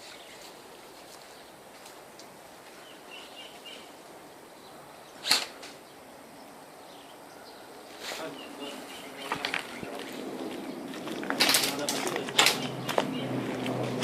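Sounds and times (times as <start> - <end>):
airsoft gun shot: 5.2 - 5.6.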